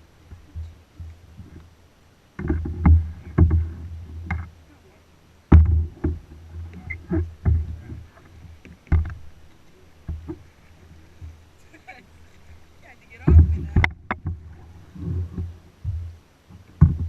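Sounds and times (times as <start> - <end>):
paddle knocking on kayak hull: 2.4 - 4.5, 5.5 - 9.3, 10.0 - 11.4, 13.2 - 17.0.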